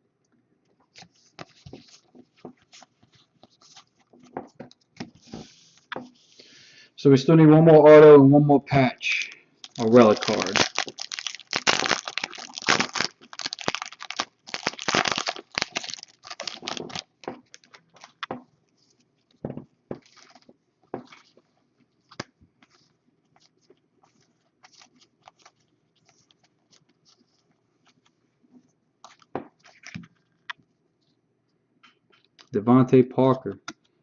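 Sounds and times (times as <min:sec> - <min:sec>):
foil wrapper tearing and crinkling: 0:09.6 - 0:18.2, 0:20.0 - 0:20.5, 0:23.4 - 0:27.4.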